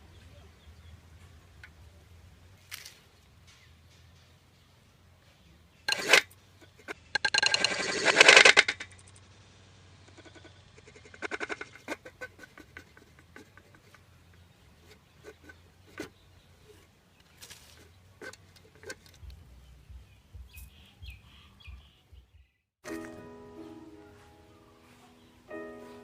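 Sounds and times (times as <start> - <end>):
animal high-pitched chattering calls: 10.0 - 14.0.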